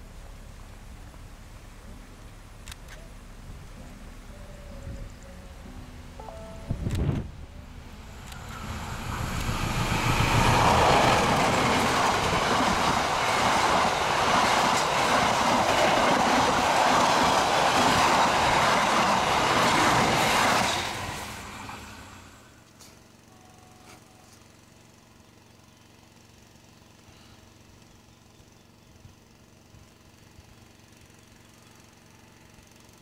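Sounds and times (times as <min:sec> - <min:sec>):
train wheels rumbling on rails: 0:06.9 - 0:22.6.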